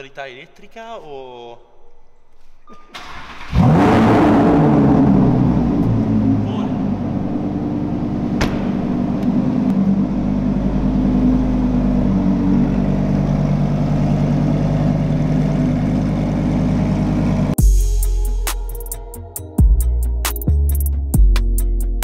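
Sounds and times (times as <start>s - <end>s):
car engine idling: 3.0s - 17.6s
music: 17.6s - 22.0s.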